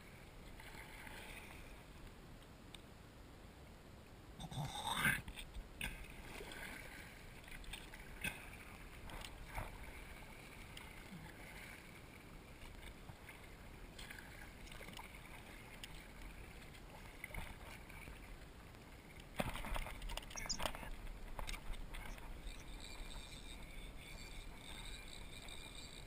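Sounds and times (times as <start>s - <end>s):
water lapping against kayak hull: 5.3s - 26.0s.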